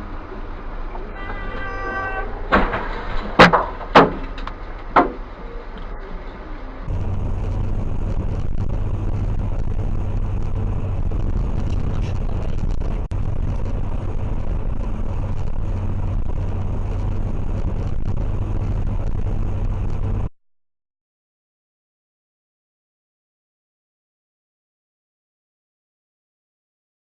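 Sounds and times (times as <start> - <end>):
car engine and road noise: 0.0 - 20.4.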